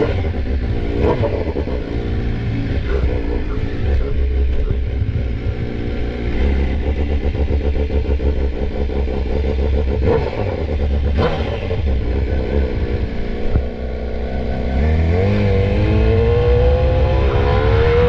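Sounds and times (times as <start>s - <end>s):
motorcycle engine idling: 0.1s - 14.6s.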